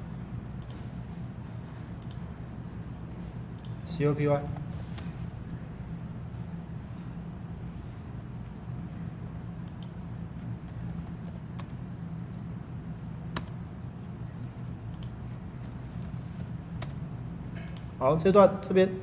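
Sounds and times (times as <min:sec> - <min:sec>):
steady low hum: 0:00.0 - 0:19.0
computer mouse and keyboard clicks: 0:02.0 - 0:02.2, 0:09.6 - 0:11.8, 0:13.4 - 0:17.0.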